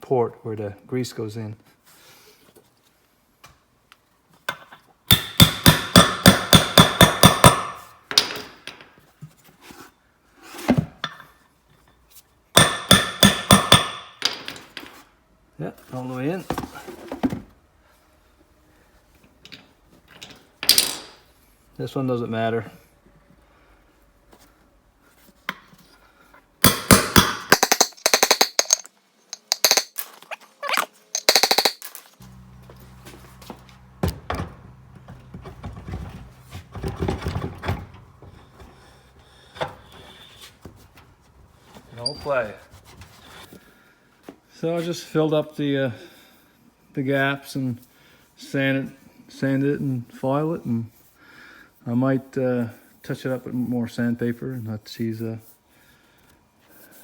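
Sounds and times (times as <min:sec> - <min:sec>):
hammer tapping on metal: 0:05.1 - 0:07.8, 0:12.6 - 0:14.1
low hum: 0:32.2 - 0:40.0.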